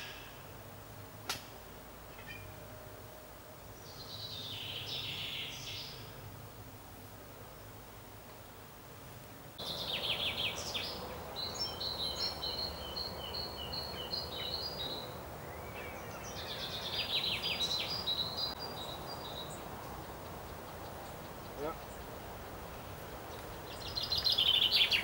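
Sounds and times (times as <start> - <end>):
songbirds trilling: 2.0 - 2.7, 3.6 - 6.3, 9.6 - 25.0.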